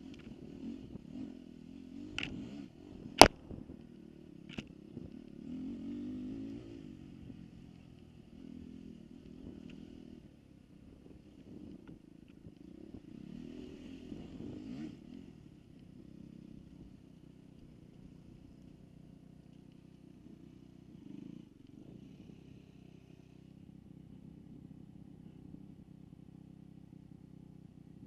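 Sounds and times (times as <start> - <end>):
dirt bike engine revving: 0.0 - 10.2, 11.1 - 15.6.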